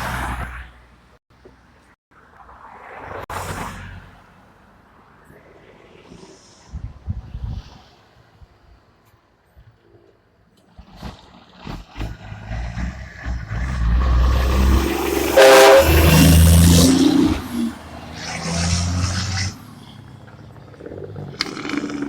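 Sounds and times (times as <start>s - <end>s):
truck engine revving: 10.6s - 22.0s
truck horn blast: 13.2s - 17.7s.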